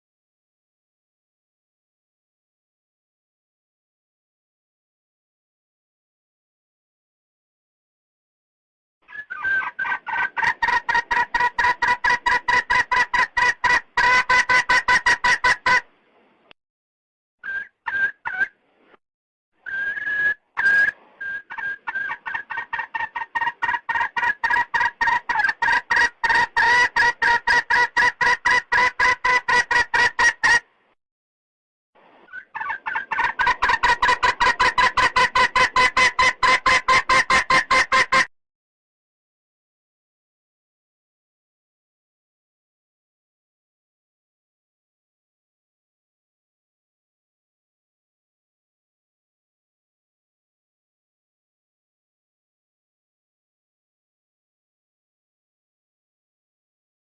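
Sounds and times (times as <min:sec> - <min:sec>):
hen clucking: 0:09.1 - 0:15.9, 0:17.4 - 0:18.5, 0:20.6 - 0:30.6, 0:32.2 - 0:38.3.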